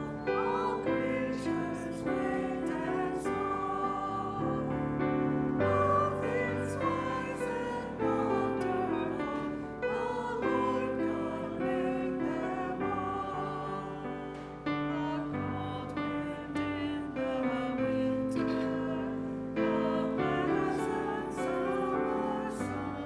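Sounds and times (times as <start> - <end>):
choir singing a hymn: 0.0 - 23.0
keyboard accompaniment: 0.0 - 23.0.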